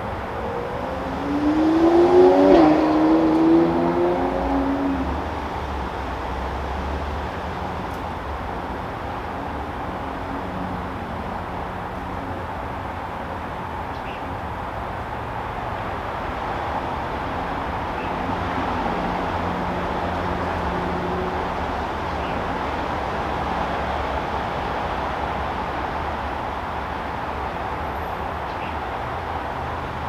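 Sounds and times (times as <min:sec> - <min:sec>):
distant vehicle traffic rumble: 0:00.0 - 0:30.0.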